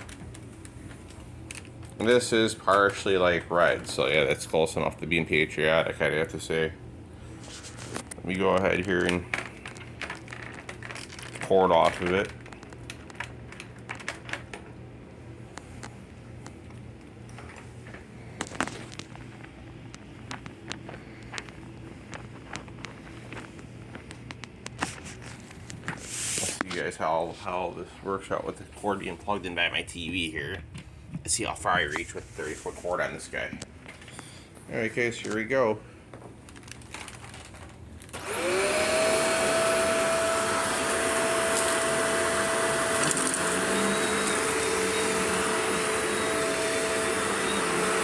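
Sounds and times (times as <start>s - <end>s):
steady low hum: 0.0s - 36.8s
vacuum cleaner motor whine: 38.1s - 48.0s.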